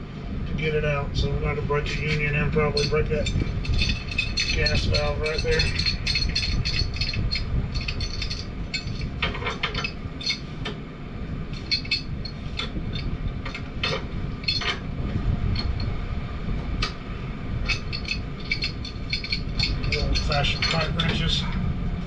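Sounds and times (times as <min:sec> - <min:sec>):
steady low rumble: 0:00.0 - 0:22.0
metal tools clicking and clinking: 0:01.9 - 0:10.8, 0:11.5 - 0:14.9, 0:15.5 - 0:15.9, 0:17.6 - 0:21.6.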